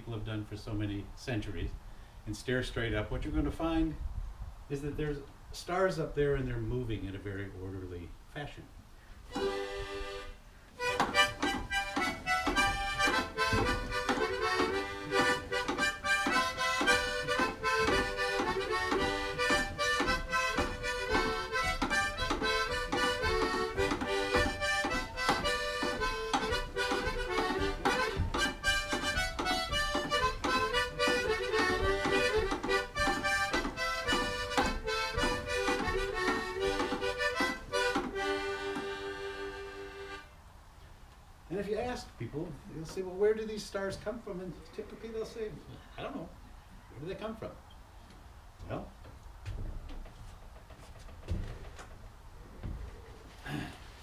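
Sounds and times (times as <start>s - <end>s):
accordion tune: 9.3s - 40.4s.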